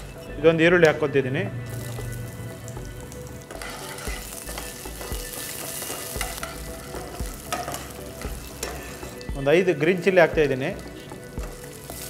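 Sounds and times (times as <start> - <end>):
onions sizzling in oil: 1.6 - 12.0
spatula scraping a pan: 3.5 - 9.2.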